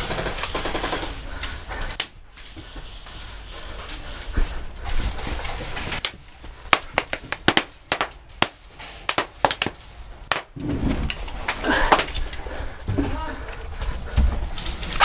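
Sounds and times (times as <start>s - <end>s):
airsoft guns firing: 0.0s - 1.3s.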